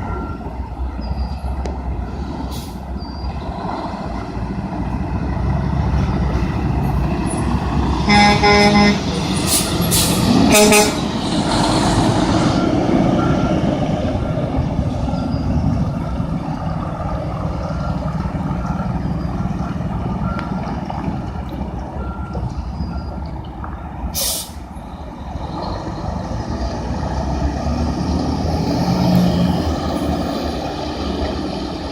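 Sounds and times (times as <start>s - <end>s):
reversing alarm beeping: 0.0s - 1.6s, 12.4s - 13.7s
diesel truck engine running: 0.0s - 31.9s
air brakes hiss: 24.2s - 24.6s.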